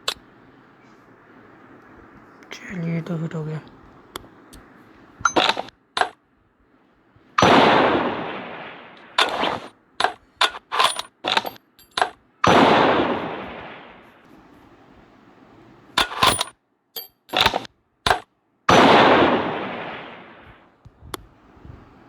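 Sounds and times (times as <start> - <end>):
gunshots: 7.4 - 9.7, 12.4 - 14.2, 17.3 - 20.6.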